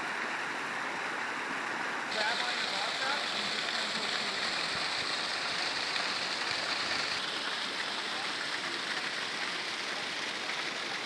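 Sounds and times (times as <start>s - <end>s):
waterfalls splashing into pools: 1.4s - 11.0s.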